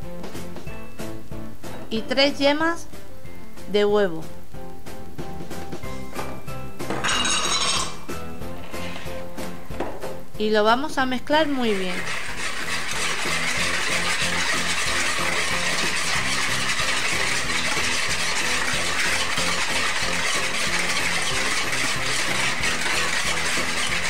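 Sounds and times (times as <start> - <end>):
whisk rattling in plastic bowl: 7.1 - 8.0, 11.4 - 24.0.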